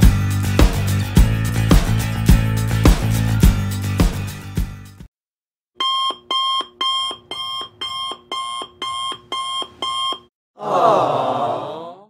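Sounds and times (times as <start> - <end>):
alarm clock beeping: 5.8 - 10.3
crowd going aww: 10.6 - 12.0.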